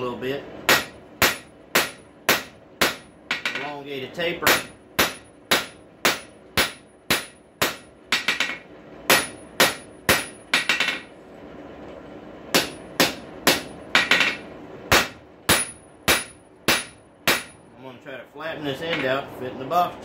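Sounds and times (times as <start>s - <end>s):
hammer striking metal on anvil: 0.7s - 3.8s, 4.4s - 11.1s, 12.5s - 17.7s.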